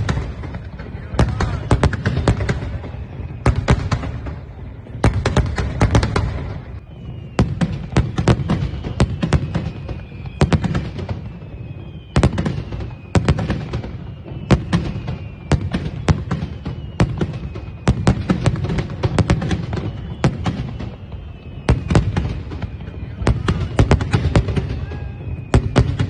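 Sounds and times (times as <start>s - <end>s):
falling firework whistle: 0.0s - 26.0s
fireworks bangs and crackles: 0.0s - 26.0s.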